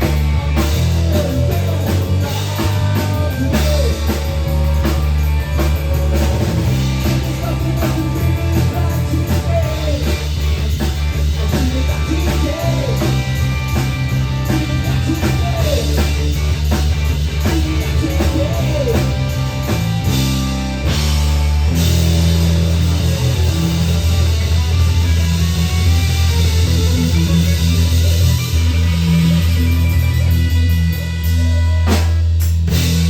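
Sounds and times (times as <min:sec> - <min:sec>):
bass guitar: 0:00.0 - 0:33.0
drum kit: 0:00.0 - 0:33.0
electric guitar: 0:00.0 - 0:33.0.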